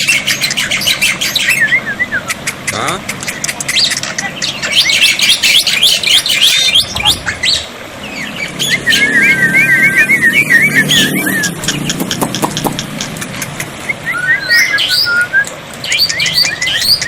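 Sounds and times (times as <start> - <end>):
starling chirps and squawks: 0.0 - 13.8, 15.8 - 17.0
warbled bird notes: 0.0 - 17.0
sharp bird clicks: 2.2 - 4.7, 11.2 - 17.0.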